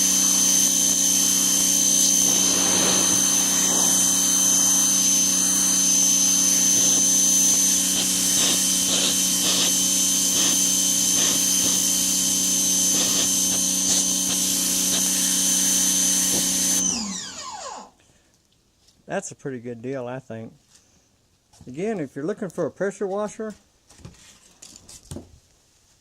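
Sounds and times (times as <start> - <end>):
pressure washer running: 0.0 - 17.9
motor winding down: 0.0 - 18.0.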